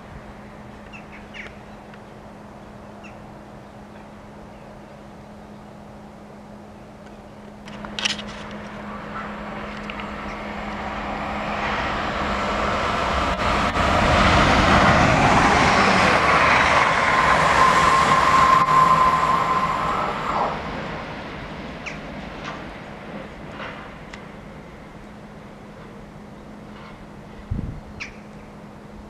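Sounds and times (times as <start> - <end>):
electric train passing: 0.0 - 29.0
high whine: 7.0 - 22.6.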